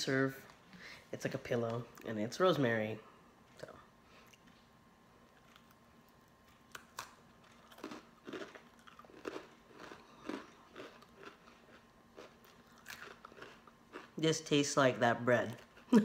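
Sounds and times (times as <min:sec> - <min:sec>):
cracker crunching and chewing: 0:04.2 - 0:14.2, 0:15.4 - 0:15.9.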